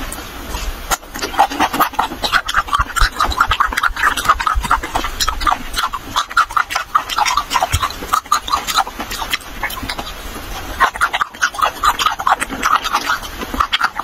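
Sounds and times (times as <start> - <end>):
wet chewing and lip smacking: 0.0 - 14.0.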